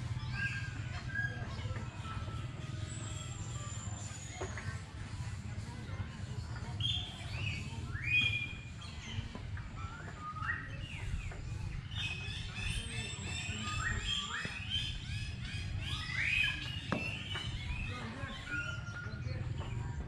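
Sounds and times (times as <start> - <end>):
small birds chirping: 6.2 - 20.0.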